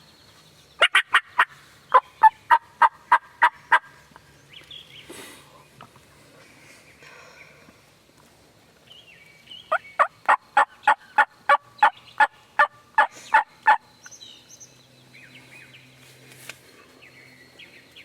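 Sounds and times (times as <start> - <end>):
songbird chirps: 0.0 - 18.0
turkey yelping: 0.8 - 3.9.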